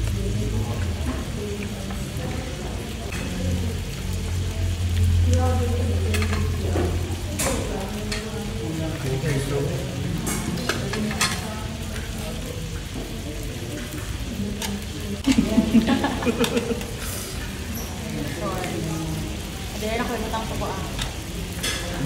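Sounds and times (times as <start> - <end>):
meat sizzling on a grill pan: 0.0 - 22.0
chopsticks clicking on plates: 6.1 - 6.6, 7.4 - 8.4, 10.2 - 12.0, 16.0 - 17.0, 20.9 - 22.0.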